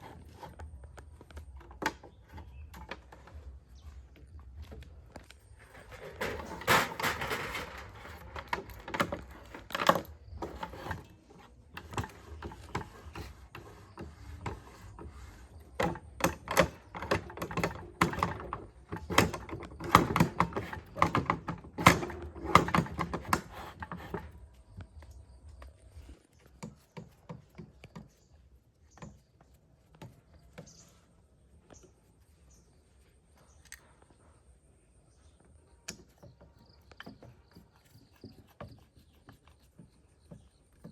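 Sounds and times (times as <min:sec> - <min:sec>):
hard objects knocking and clicking: 0:05.1 - 0:11.1, 0:11.7 - 0:24.9.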